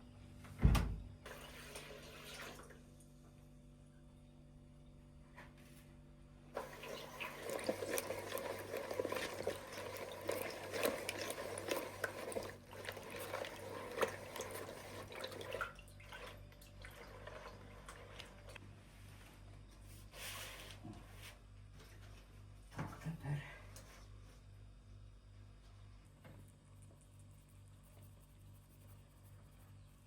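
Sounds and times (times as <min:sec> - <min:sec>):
water splashing into a container: 0:06.6 - 0:18.3.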